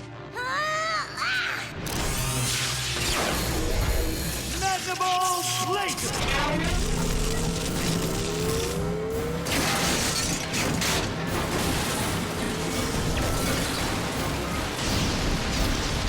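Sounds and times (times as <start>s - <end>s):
action background music: 0.0s - 16.0s
crashing and shattering impacts: 9.4s - 16.0s.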